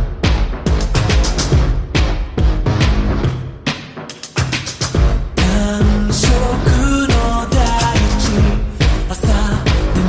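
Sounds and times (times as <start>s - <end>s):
pop-rock song with male singer: 5.4s - 10.0s.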